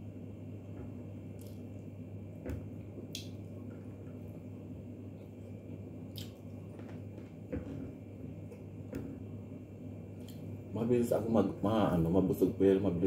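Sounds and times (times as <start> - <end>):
steady low hum: 0.0 - 13.0
wet chewing and lip smacks: 6.1 - 6.5.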